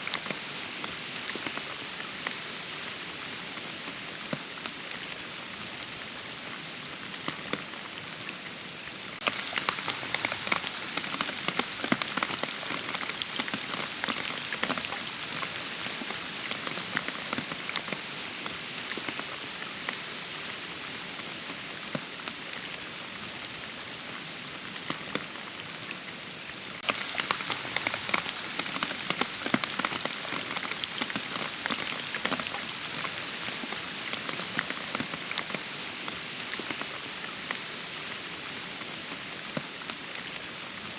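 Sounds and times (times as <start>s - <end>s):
steady rain: 0.0s - 40.9s
raindrop hits: 9.2s - 18.1s, 26.8s - 35.8s.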